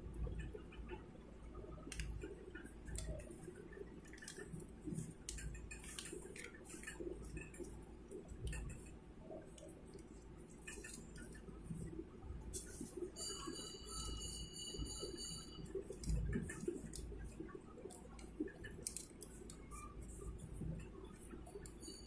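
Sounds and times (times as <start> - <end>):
paper crinkling: 2.8 - 7.8, 9.5 - 11.9, 15.6 - 21.7.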